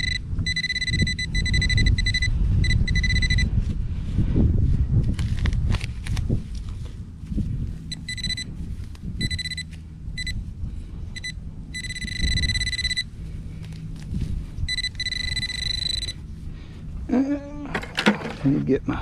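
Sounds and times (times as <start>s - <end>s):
metal detector beeping: 0.0s - 3.6s, 7.9s - 8.6s, 9.2s - 10.5s, 11.1s - 13.1s, 14.6s - 16.2s.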